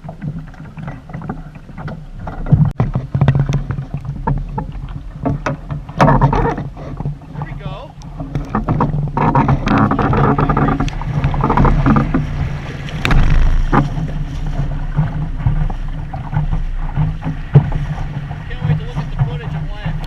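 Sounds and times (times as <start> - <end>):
water rushing past boat: 0.0 - 20.0
wind rushing: 9.9 - 20.0
knocks: 13.0 - 14.2.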